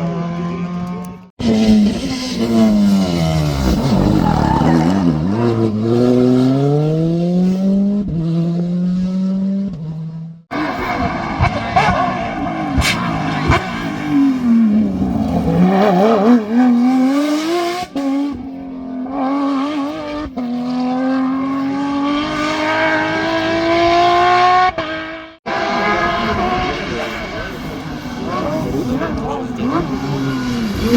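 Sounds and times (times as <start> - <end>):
rally car engine accelerating: 0.0 - 30.9
sharp engine pops: 12.8 - 13.7.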